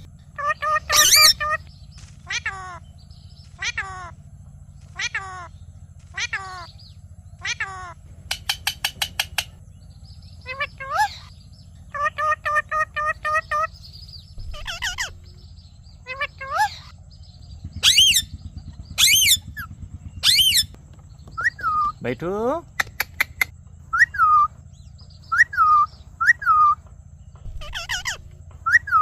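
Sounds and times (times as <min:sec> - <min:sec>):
parrot chattering: 0:00.0 - 0:04.3, 0:04.9 - 0:09.6, 0:10.3 - 0:15.4, 0:16.0 - 0:17.0, 0:17.7 - 0:20.7, 0:21.4 - 0:24.5, 0:27.4 - 0:29.0
parrot squawking: 0:00.0 - 0:09.6, 0:10.4 - 0:15.4, 0:16.0 - 0:17.0, 0:17.6 - 0:24.5, 0:25.2 - 0:26.8, 0:27.4 - 0:29.0
parrot clicking notes: 0:08.2 - 0:09.6, 0:22.7 - 0:23.5.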